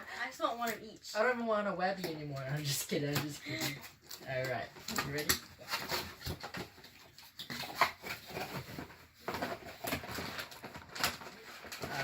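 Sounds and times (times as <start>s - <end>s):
cardboard packaging rustling: 2.3s - 12.0s.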